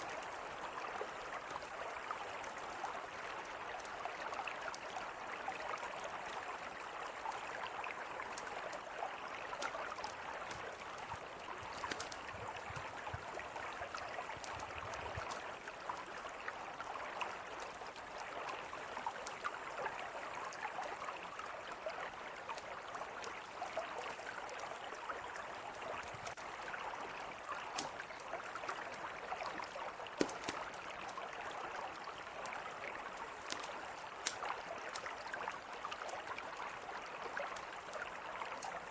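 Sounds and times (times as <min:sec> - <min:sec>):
river flowing: 0:00.0 - 0:38.9
campfire crackling and popping: 0:09.5 - 0:16.2, 0:27.4 - 0:31.4, 0:32.0 - 0:36.2.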